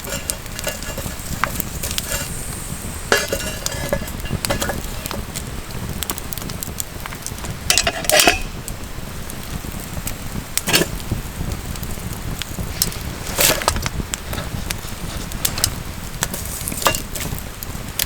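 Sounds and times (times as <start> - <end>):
clattering crunches: 0.0 - 5.5, 12.8 - 17.4
campfire crackling and popping: 0.0 - 18.0.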